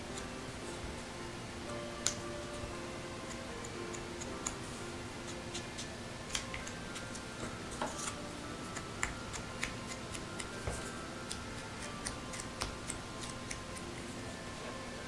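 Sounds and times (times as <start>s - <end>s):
ink applicator tapping: 2.0s - 13.9s.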